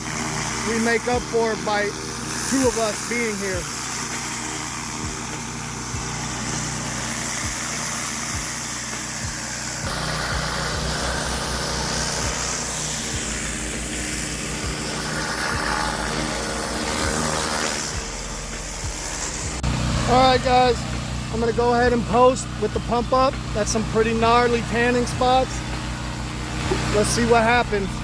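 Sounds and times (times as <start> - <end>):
pressure washer engine running: 0.0 - 28.0
water spraying onto concrete: 0.0 - 28.0.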